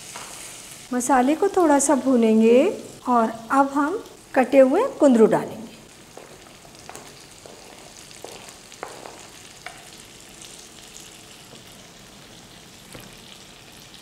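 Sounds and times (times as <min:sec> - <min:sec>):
oil and spices sizzling: 0:00.0 - 0:14.0.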